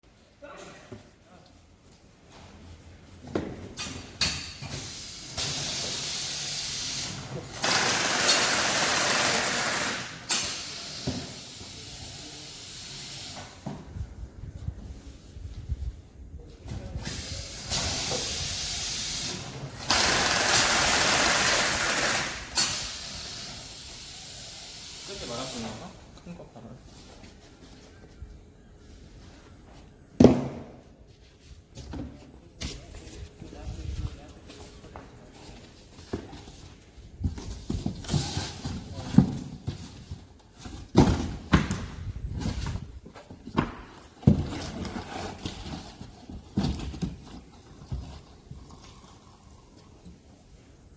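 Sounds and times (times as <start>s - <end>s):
machine hissing: 4.7s - 13.5s, 17.0s - 25.8s
packaging machinery running: 4.8s - 11.0s, 17.1s - 23.4s
short hiss: 17.0s - 25.8s.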